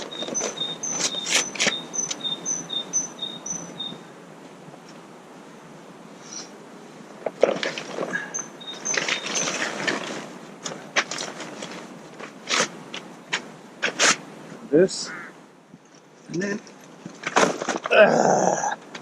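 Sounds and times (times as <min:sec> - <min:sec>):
camping gear rustling and clicking: 0:00.0 - 0:02.2, 0:07.2 - 0:14.3, 0:15.8 - 0:17.9
small birds chirping: 0:00.0 - 0:04.1, 0:07.9 - 0:10.2.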